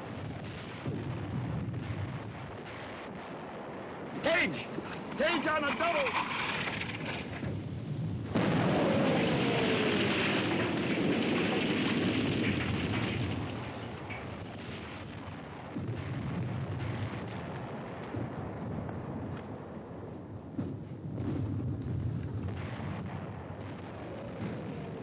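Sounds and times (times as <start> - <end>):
artillery blast: 5.1 - 19.3, 20.5 - 25.0.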